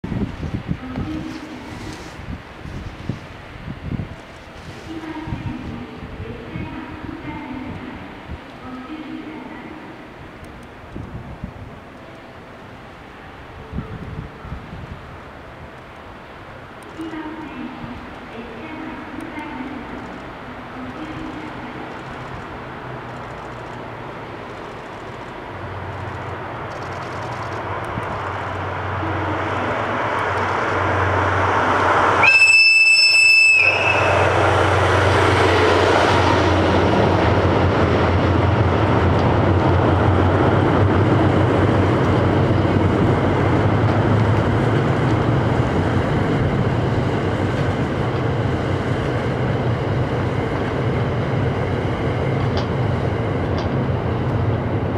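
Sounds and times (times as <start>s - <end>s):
diesel locomotive engine hum: 0.0s - 54.9s
train wheels rumbling on rails: 0.0s - 54.9s
train horn blast: 32.2s - 34.8s.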